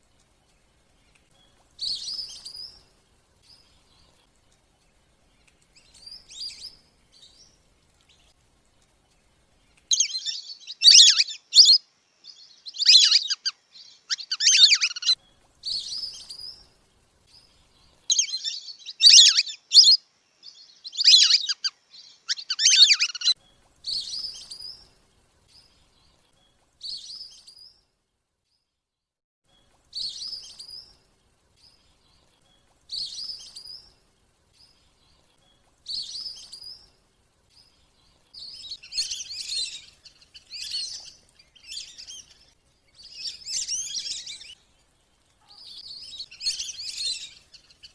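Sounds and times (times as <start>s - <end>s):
whistling ducks calling: 9.9s - 11.8s, 12.8s - 13.5s, 14.1s - 15.2s, 18.1s - 20.0s, 20.9s - 21.7s, 22.3s - 23.4s.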